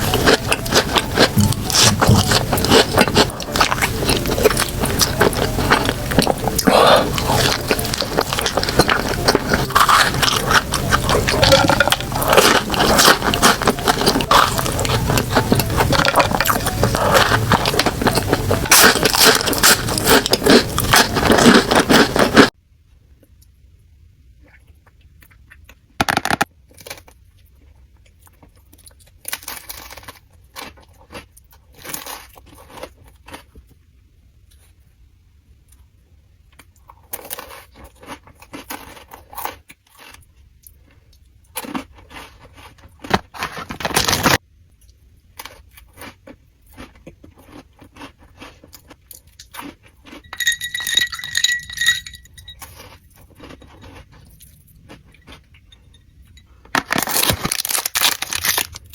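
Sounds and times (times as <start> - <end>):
crunchy chewing: 0.0 - 22.5, 36.6 - 56.0
bright ringing clinks: 50.3 - 52.6.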